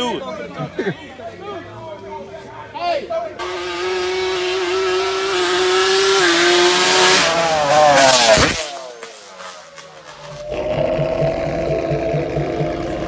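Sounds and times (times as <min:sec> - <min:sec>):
dirt bike engine passing by: 0:03.4 - 0:13.0.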